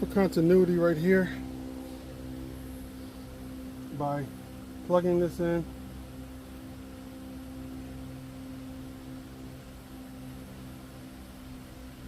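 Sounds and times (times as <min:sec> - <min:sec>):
faint hiss: 0:00.0 - 0:12.0
low electrical hum: 0:00.0 - 0:12.0.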